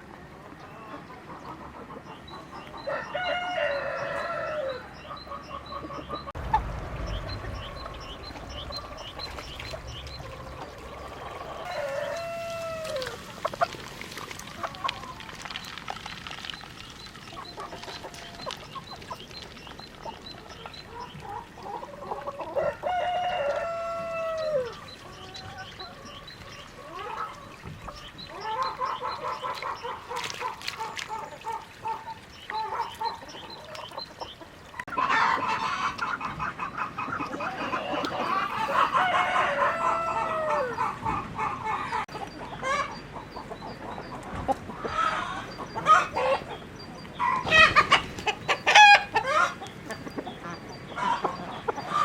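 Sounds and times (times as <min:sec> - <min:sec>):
chickens chirping and clucking: 0:00.1 - 0:52.0
rooster crowing: 0:02.9 - 0:04.9, 0:10.2 - 0:13.2, 0:22.6 - 0:24.8, 0:38.5 - 0:40.8.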